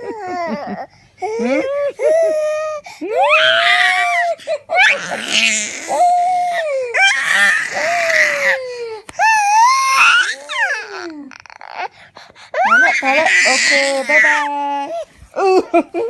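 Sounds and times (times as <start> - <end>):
infant crying: 0.0 - 15.6.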